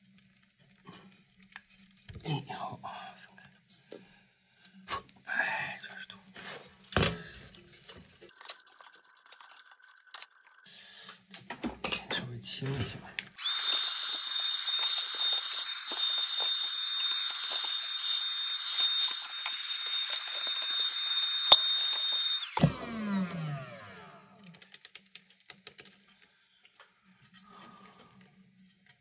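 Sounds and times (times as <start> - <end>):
electric duster motor whine: 13.4 - 24.5
motor spinning down: 13.4 - 24.6.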